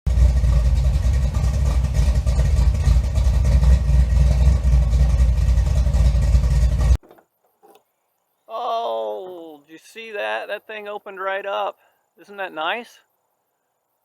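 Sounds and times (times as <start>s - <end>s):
engine deep rumble: 0.1s - 7.0s.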